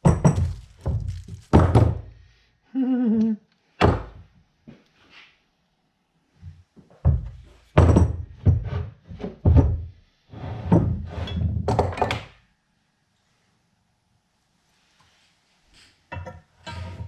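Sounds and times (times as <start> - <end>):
metal parts thunking and knocking: 0.0 - 2.0, 7.1 - 8.7.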